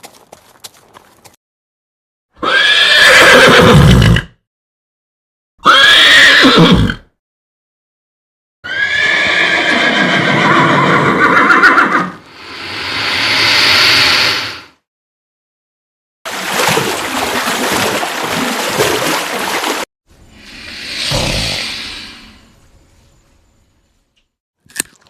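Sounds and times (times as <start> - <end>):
horse whinnying: 2.4 - 4.3, 5.6 - 7.1, 8.6 - 12.2.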